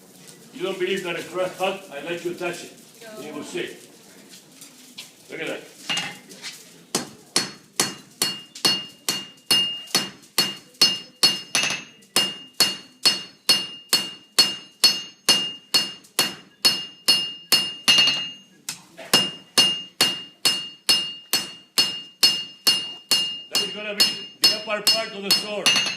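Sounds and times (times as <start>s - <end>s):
hammer striking steel on anvil: 7.0s - 18.5s, 19.1s - 25.9s.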